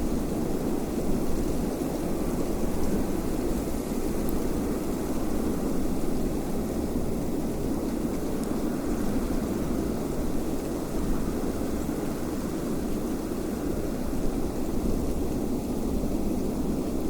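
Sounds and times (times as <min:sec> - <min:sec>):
low wind rush: 0:00.0 - 0:17.0.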